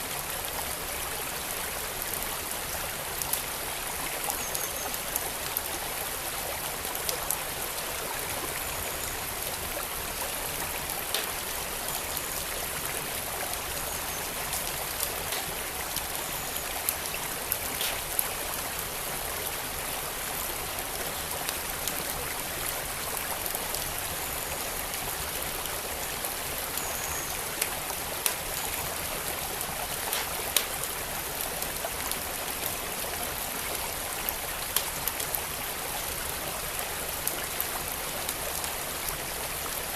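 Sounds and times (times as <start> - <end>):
flowing creek: 0.0 - 39.9
wood fire crackling: 10.4 - 18.9, 27.4 - 31.8, 34.3 - 35.6.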